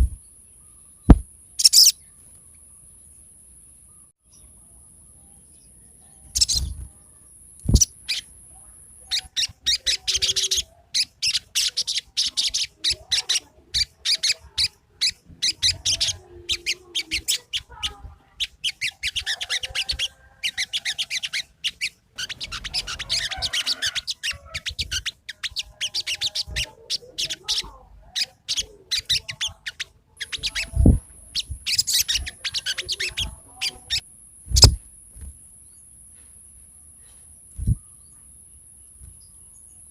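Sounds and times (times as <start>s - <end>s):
sunbird twittering chirps: 0.0s - 39.9s
dull thumps: 1.1s - 1.3s.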